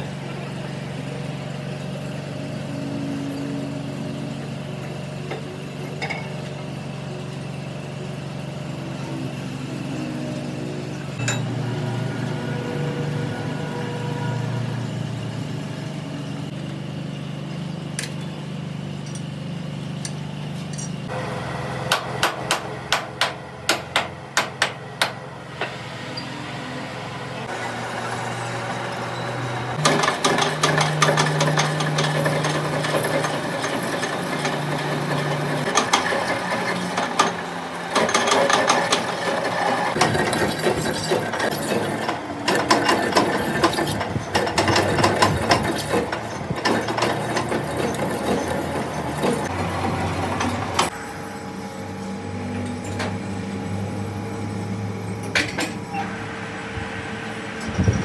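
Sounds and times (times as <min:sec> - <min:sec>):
hammer striking metal: 0:11.2 - 0:11.5, 0:21.9 - 0:25.8.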